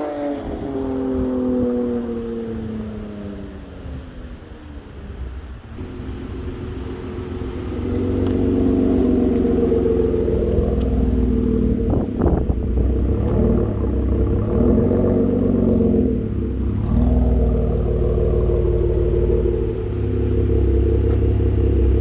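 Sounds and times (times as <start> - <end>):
car engine exhaust note: 5.8 - 22.0
exhaust crackle: 5.8 - 22.0.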